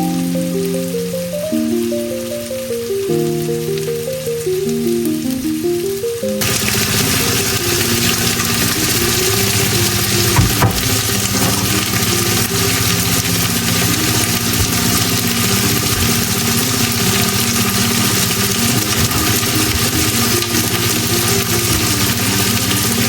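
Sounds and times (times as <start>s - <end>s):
background music: 0.0s - 23.0s
food sizzling in hot oil: 6.4s - 23.0s.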